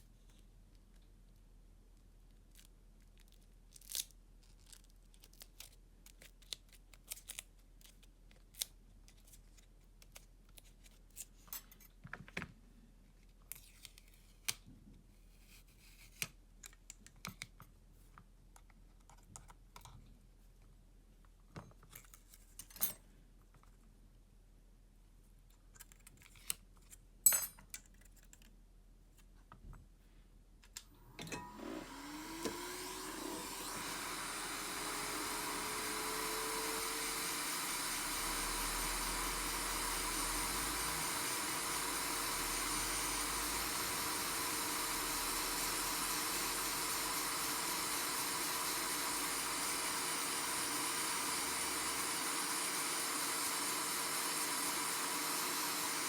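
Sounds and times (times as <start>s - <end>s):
hot-air tool blower whining: 30.9s - 56.0s.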